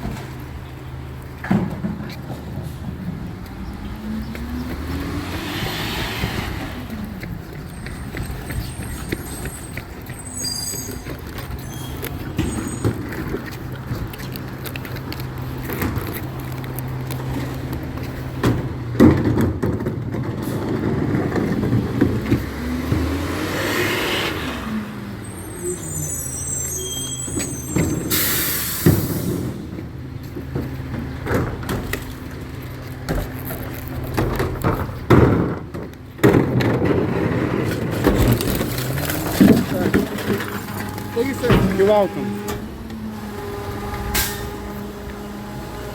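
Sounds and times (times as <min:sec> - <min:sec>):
diesel engine humming: 0:00.0 - 0:45.9
clanks and knocks: 0:01.3 - 0:03.6, 0:10.9 - 0:23.1, 0:33.0 - 0:42.7.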